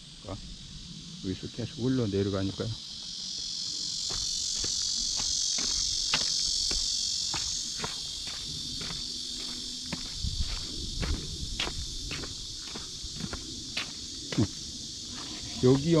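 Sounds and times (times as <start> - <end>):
insects chirring: 0.0 - 16.0
footsteps: 4.0 - 14.5.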